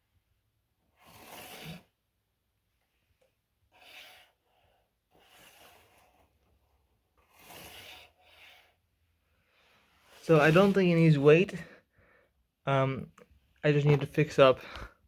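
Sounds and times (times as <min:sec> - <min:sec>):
person breathing softly: 0:11.5 - 0:12.5, 0:14.6 - 0:15.0.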